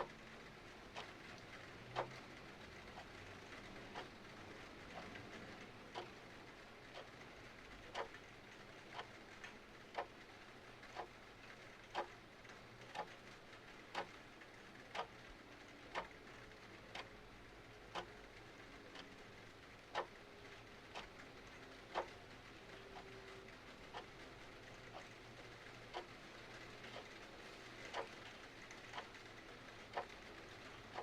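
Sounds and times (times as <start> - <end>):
faint steady hiss: 0.0 - 31.0
mechanical clock ticking: 0.9 - 6.2, 7.9 - 8.2, 8.8 - 9.2, 9.9 - 10.3, 10.9 - 11.2, 11.8 - 12.2, 12.9 - 14.2, 14.9 - 16.3, 16.9 - 17.1, 17.9 - 18.2, 19.8 - 31.0.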